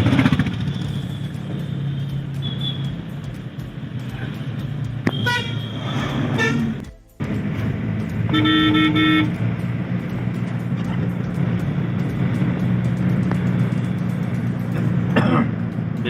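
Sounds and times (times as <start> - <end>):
car hum on the road: 0.0 - 16.0
car horn honking: 0.6 - 3.2, 4.3 - 6.8, 8.2 - 9.5.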